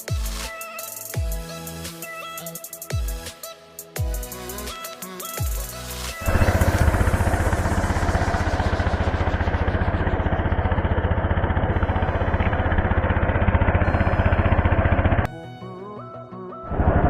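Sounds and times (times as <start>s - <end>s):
boat engine chugging: 6.2s - 15.3s.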